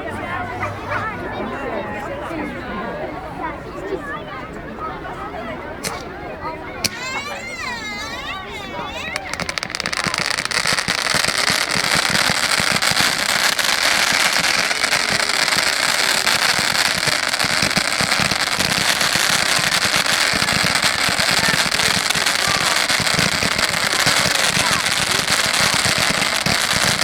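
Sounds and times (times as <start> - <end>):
fireworks crackling: 6.8 - 27.0.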